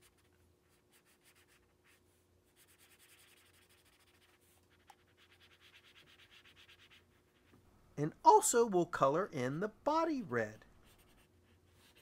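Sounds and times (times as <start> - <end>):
marker scribbling on paper: 0.0 - 7.5, 10.8 - 12.0.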